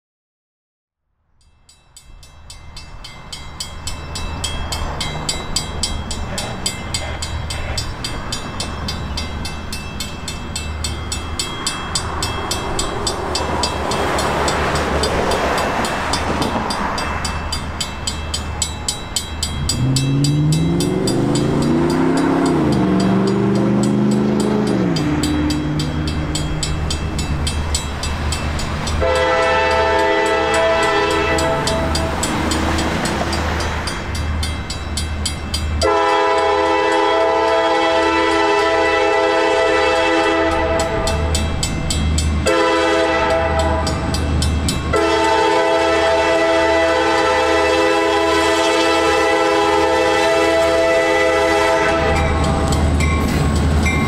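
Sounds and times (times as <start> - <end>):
diesel locomotives rumbling past: 1.4 - 54.0
locomotive horn chord: 29.0 - 33.0, 35.8 - 41.5, 42.4 - 44.2, 44.9 - 52.9.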